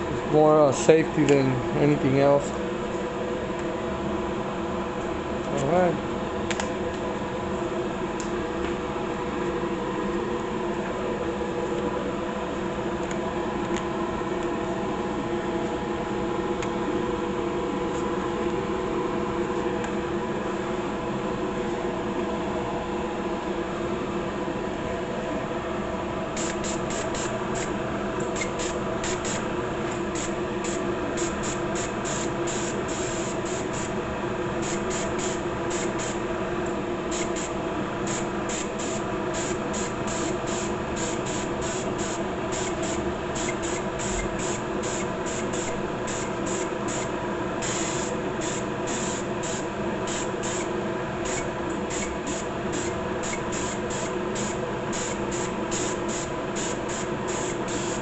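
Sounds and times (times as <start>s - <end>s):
spray hissing bursts: 26.4s - 27.7s, 28.4s - 29.4s, 30.2s - 33.9s, 34.6s - 36.2s, 37.1s - 58.0s.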